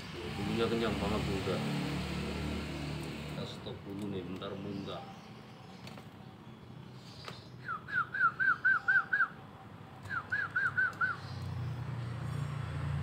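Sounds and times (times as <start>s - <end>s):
bird whistling short notes: 10.1s - 11.4s.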